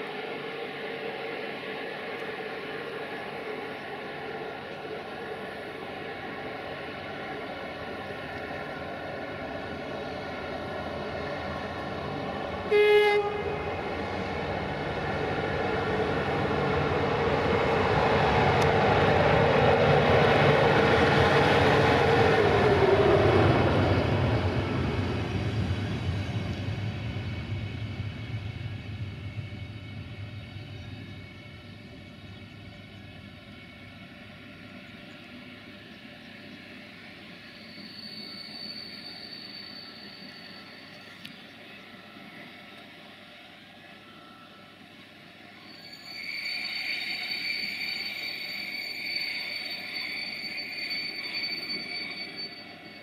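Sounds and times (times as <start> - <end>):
train passing close by: 0.0 - 53.0
train horn blast: 12.6 - 13.9.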